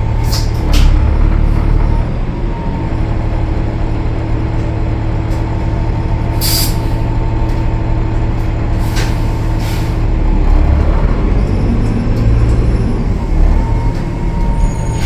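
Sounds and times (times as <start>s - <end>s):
diesel bus engine rumbling: 0.0s - 15.0s.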